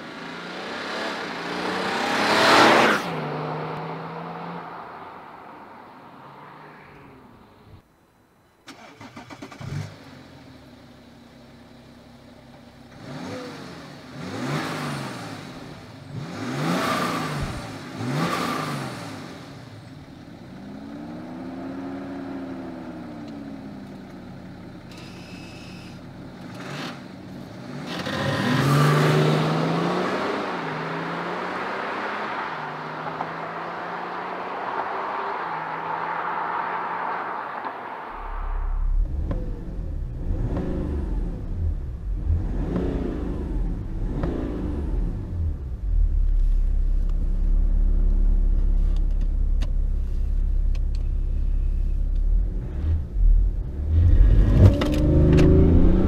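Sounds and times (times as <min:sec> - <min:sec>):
diesel car engine idling and revving: 0:00.0 - 0:07.9, 0:08.7 - 0:56.0
car accelerating away: 0:27.8 - 0:49.7, 0:50.6 - 0:56.0.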